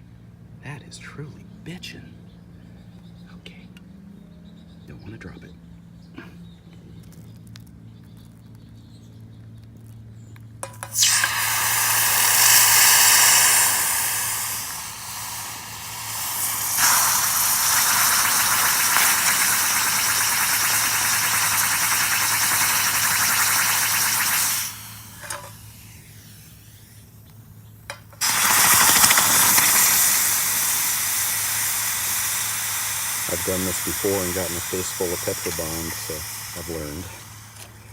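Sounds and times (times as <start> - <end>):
hot metal hissing in water: 10.7 - 27.1, 28.2 - 37.9.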